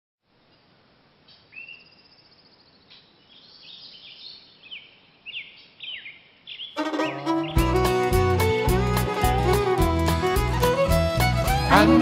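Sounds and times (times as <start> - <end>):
songbirds singing: 0.4 - 8.0.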